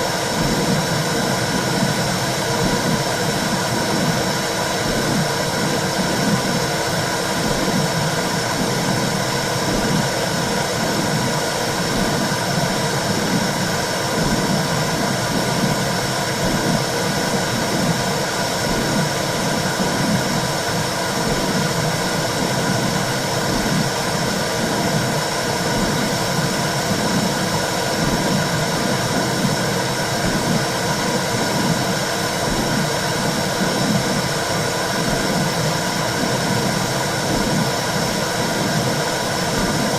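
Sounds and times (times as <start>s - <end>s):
womb whooshing with rhythmic pulse: 0.0s - 39.9s.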